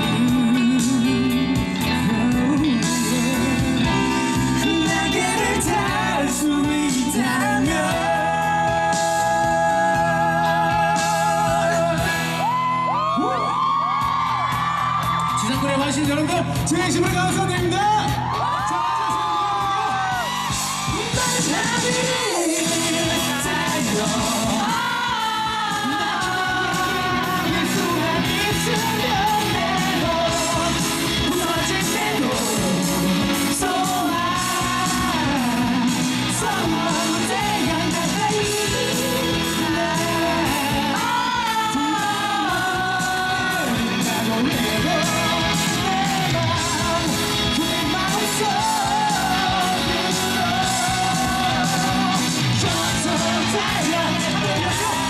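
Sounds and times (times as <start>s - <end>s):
live pop-rock band: 0.0s - 55.0s
audience yelling: 10.5s - 16.3s, 17.7s - 32.8s, 47.6s - 55.0s.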